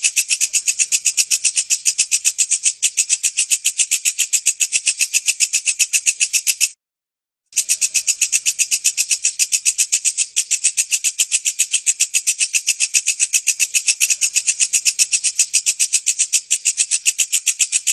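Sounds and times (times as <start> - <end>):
insect chirping rapidly: 0.0 - 6.8, 7.5 - 17.9.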